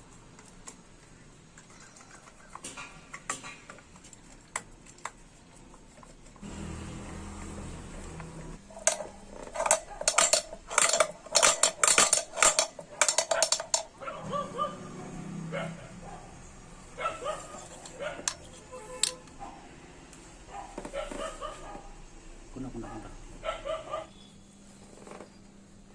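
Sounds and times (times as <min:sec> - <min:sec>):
metal parts clanking: 0:08.8 - 0:14.0.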